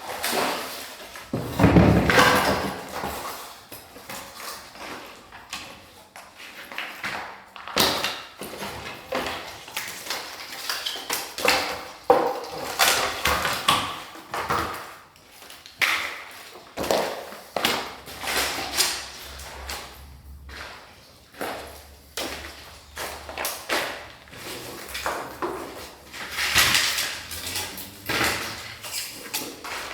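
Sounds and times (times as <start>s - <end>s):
rubble clattering and knocking: 0.0s - 4.9s, 20.5s - 29.9s.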